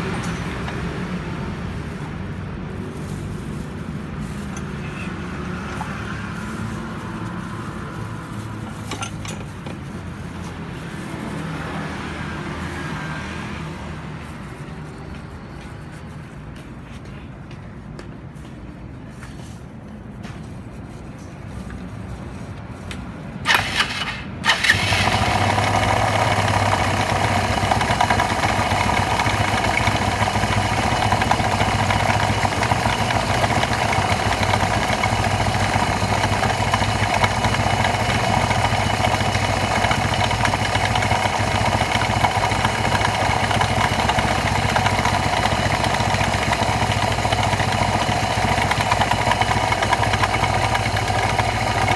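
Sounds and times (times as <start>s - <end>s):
scooter engine starting and idling: 0.0s - 13.0s, 23.4s - 51.9s.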